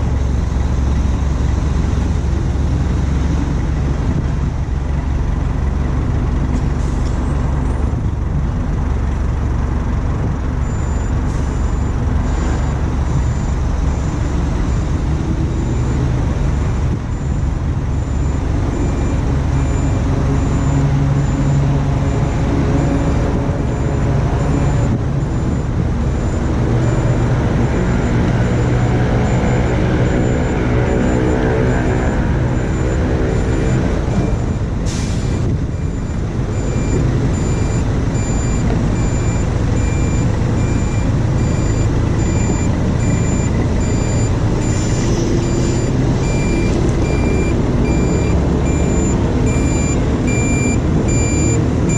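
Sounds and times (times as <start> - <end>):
diesel engine running: 0.0 - 51.9
faint high beep: 35.8 - 51.9.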